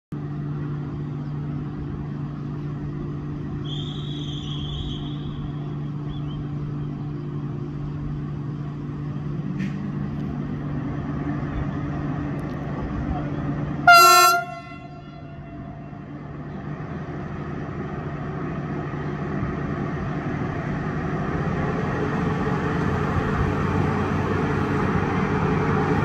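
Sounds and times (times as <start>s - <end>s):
locomotive humming: 0.2s - 26.0s
high-pitched whistle-like tone: 3.6s - 6.4s.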